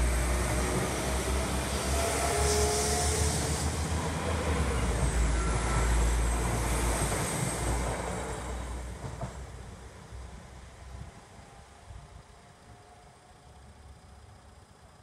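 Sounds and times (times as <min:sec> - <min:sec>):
diesel train passing: 0:00.0 - 0:14.9.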